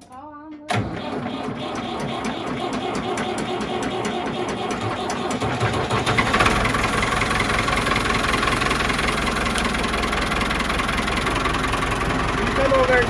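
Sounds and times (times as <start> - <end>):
vehicle engine running: 1.0 - 13.0.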